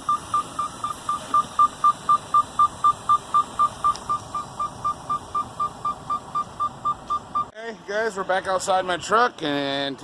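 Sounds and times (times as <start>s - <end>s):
short electronic beeps: 0.0s - 7.5s.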